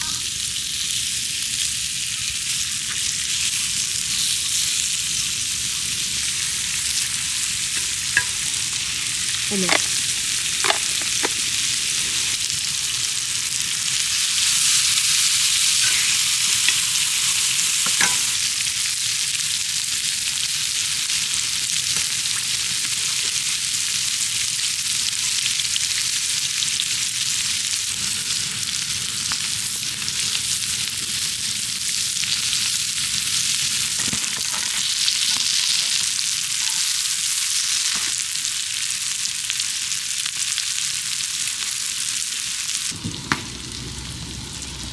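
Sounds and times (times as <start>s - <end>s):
food sizzling in oil: 0.0s - 44.9s
cooking utensil clicks: 7.8s - 8.6s, 9.6s - 10.0s, 10.6s - 11.4s, 17.8s - 18.4s.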